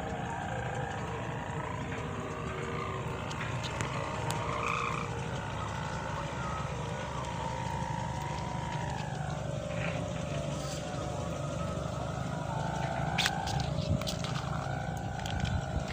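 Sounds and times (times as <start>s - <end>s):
kite hummer droning: 0.0s - 15.9s
wind rumble on microphone: 0.0s - 15.9s.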